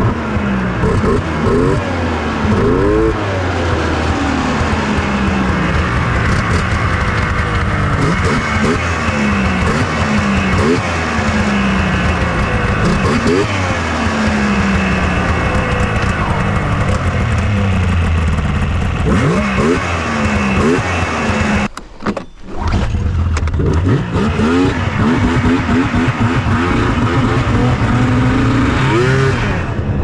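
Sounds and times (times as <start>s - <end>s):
snowmobile engine revving: 0.0s - 30.0s.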